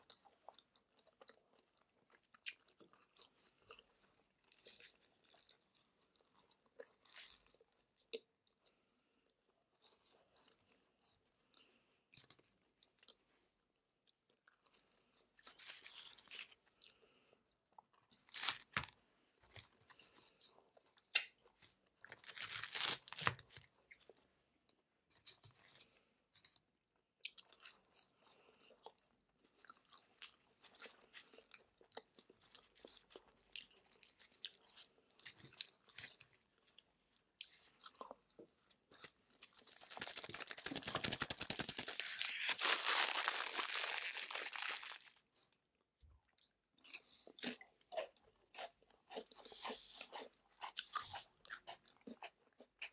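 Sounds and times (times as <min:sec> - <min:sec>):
chewing pizza crust: 0:00.0 - 0:52.9
crunches of crisp crust: 0:14.8 - 0:17.1, 0:18.0 - 0:24.2, 0:29.8 - 0:45.2
foil wrapper crinkling: 0:18.3 - 0:18.8, 0:22.1 - 0:23.4, 0:39.5 - 0:45.2.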